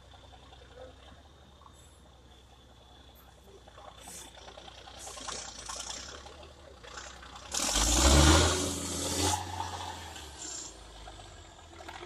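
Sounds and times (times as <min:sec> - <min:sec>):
rattle and scrape: 0:03.2 - 0:08.1, 0:08.8 - 0:12.0
truck engine revving hard: 0:04.7 - 0:12.0.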